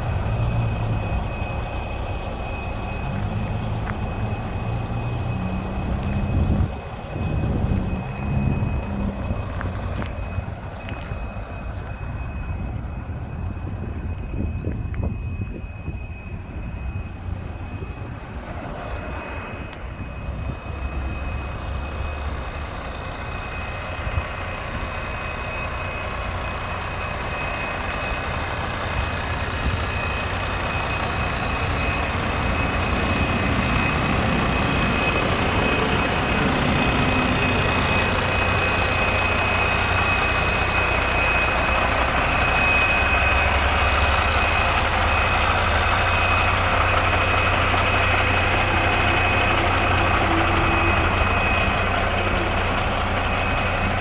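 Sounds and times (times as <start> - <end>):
heavy truck engine running: 0.0 - 54.0
high-pitched whine: 0.0 - 54.0.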